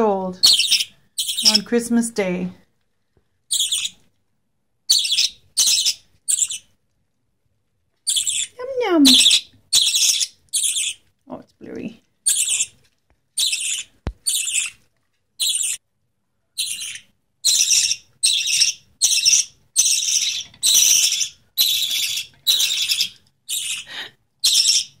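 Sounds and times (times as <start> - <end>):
budgie chick begging calls: 3.5 - 4.0, 4.9 - 6.7, 8.1 - 11.0, 12.3 - 12.7, 13.4 - 14.8.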